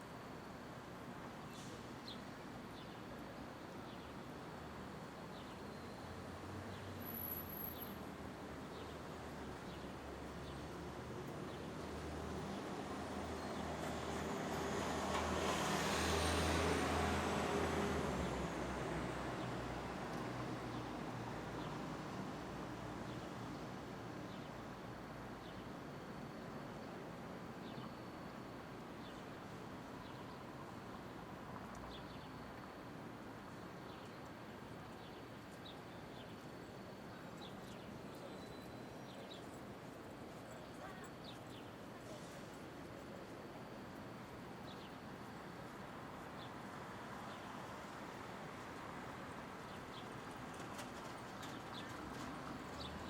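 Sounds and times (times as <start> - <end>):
hum of city traffic: 0.0 - 53.0
faint distant voices: 40.3 - 43.9.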